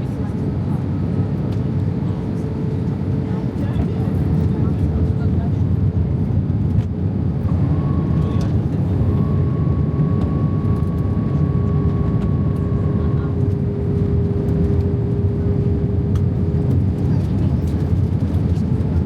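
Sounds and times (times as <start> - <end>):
jet engine rumble in cabin: 0.0 - 19.0
higher engine whine: 6.8 - 18.7.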